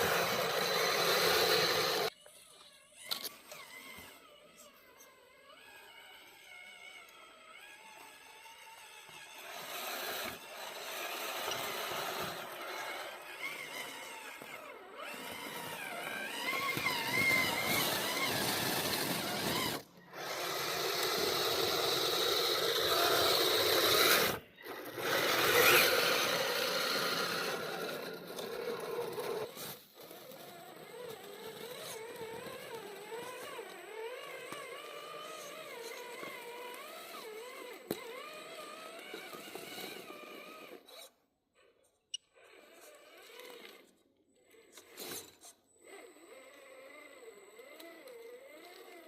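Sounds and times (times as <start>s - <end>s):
electric motors and gears whining: 0.0s - 49.0s.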